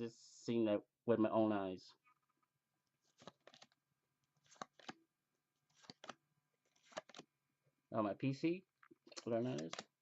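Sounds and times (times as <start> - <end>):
cards and foil wrapper rustling: 5.6 - 7.3.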